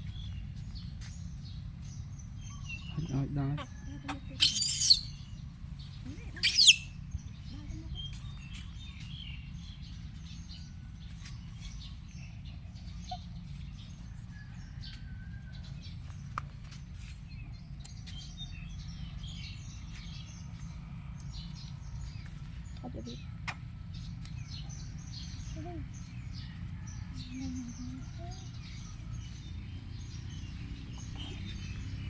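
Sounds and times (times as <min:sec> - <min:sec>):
faint high chirps: 0:04.4 - 0:05.1, 0:06.3 - 0:06.9
high-pitched squealing call: 0:04.4 - 0:05.1, 0:06.4 - 0:06.9.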